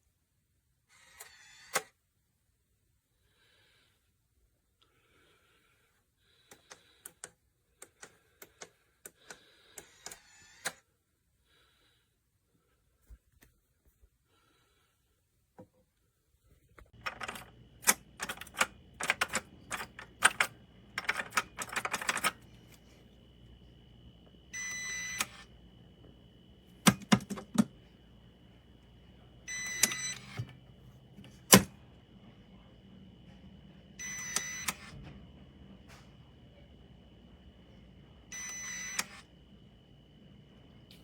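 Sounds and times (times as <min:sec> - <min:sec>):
keypad button clicks: 0:26.8 - 0:27.7.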